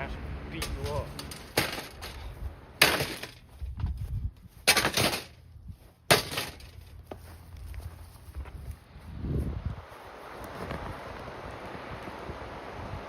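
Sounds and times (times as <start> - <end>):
box fan crashing and rattling: 0.6 - 2.2, 2.8 - 3.4, 4.6 - 5.4, 6.1 - 6.9.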